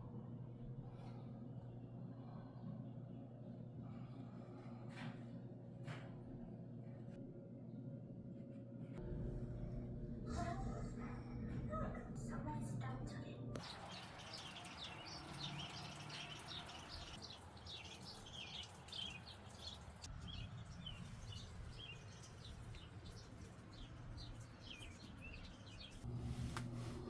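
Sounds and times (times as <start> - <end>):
small bird chirping: 13.6 - 26.0.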